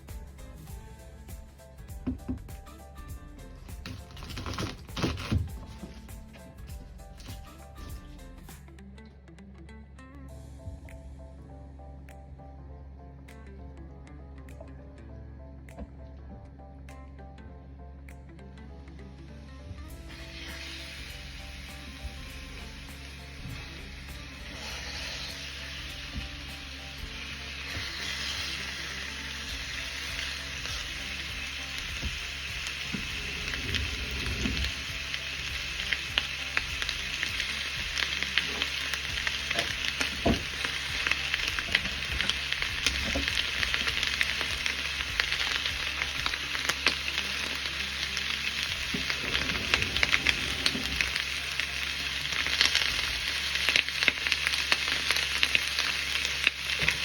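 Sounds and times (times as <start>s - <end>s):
chicken frying in hot oil: 3.6s - 8.2s, 19.9s - 57.0s.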